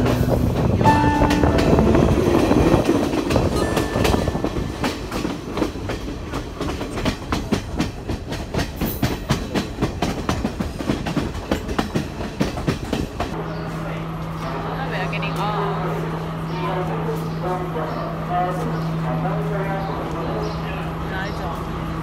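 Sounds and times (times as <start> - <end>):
train rumbling with wheels clacking: 0.0 - 22.0.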